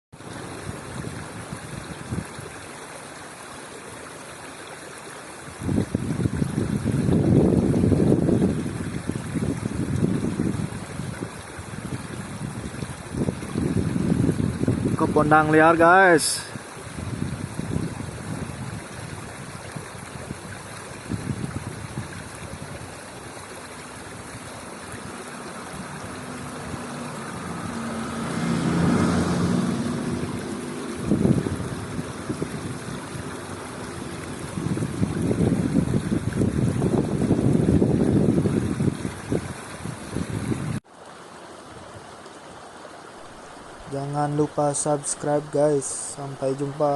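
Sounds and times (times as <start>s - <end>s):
wind buffeting microphone: 0.3s - 2.6s, 5.5s - 15.5s, 16.5s - 40.8s
low engine hum: 16.4s - 40.8s.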